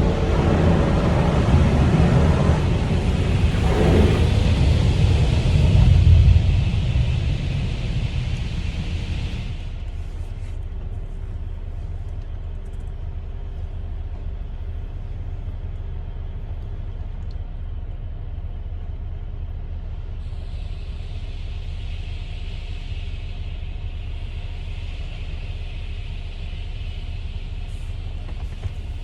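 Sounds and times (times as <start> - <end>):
car driving rumble: 0.0 - 20.8
faint constant hum: 0.0 - 29.0.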